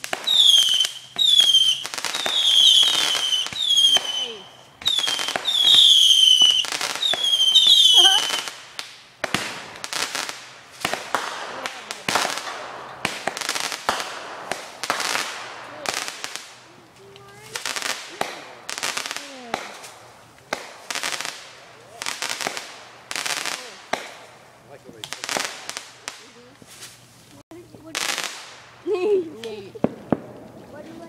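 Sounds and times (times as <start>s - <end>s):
firework whistles: 0.0s - 11.4s
firework bangs and crackling: 0.0s - 31.0s.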